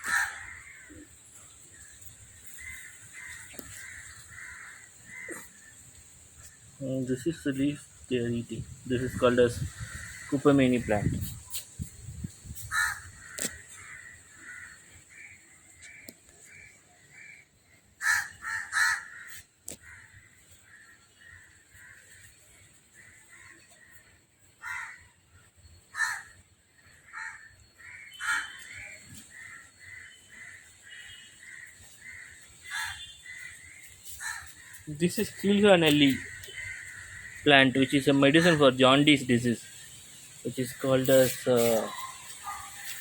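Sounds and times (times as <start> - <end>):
steady high hiss: 0.0 - 14.8, 28.6 - 43.0
birds calling: 0.0 - 43.0.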